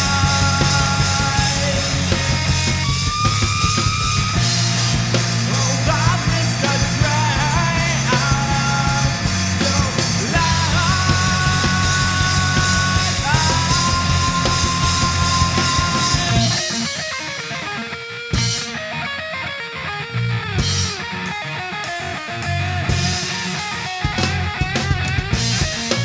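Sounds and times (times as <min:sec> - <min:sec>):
hard rock band playing: 0:00.0 - 0:26.0
sliding lead guitar line: 0:00.0 - 0:26.0.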